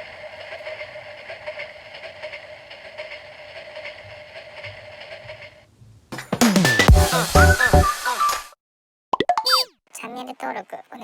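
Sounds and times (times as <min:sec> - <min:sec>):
toy train motor whining: 0:00.0 - 0:05.7, 0:07.0 - 0:08.5.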